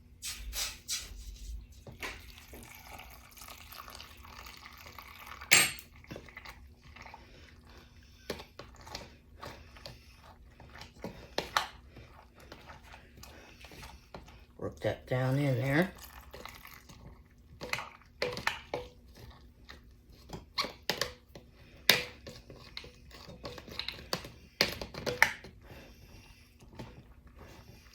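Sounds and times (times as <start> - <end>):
liquid pouring into glass jar: 2.0 - 6.6, 15.9 - 17.0.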